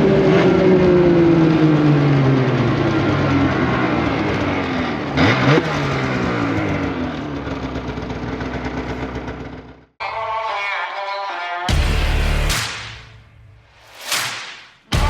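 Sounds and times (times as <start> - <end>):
snowmobile engine running: 0.0 - 9.6.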